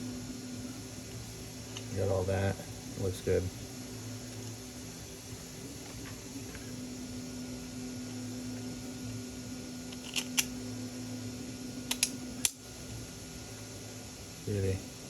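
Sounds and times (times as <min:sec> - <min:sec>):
steady low hum: 0:00.0 - 0:15.0
small parts clicking: 0:09.9 - 0:10.5.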